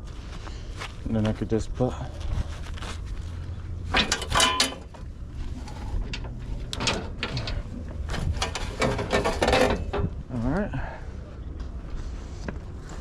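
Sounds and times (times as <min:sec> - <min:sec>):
low rumble: 0:01.9 - 0:13.0
bungee cords clanking and rattling: 0:03.8 - 0:10.4.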